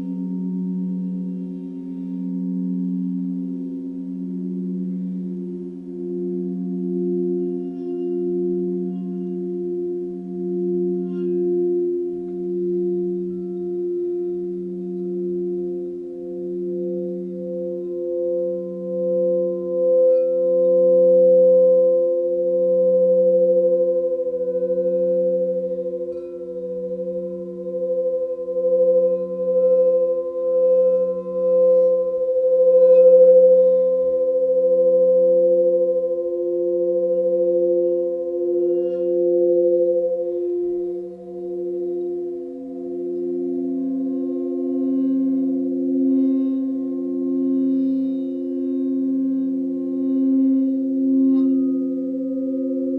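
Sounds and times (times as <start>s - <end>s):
singing bowls ringing: 0.0s - 52.9s.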